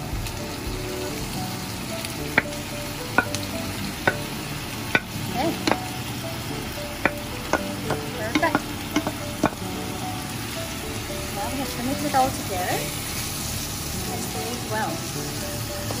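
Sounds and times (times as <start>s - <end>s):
meat sizzling in a frying pan: 0.0s - 16.0s
spoon knocking against pan: 2.3s - 6.0s, 7.0s - 9.6s.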